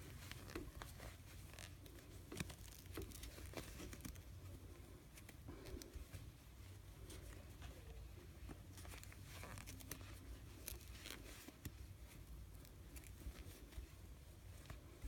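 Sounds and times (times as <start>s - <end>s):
yarn rustling: 0.0s - 7.6s, 8.4s - 15.0s.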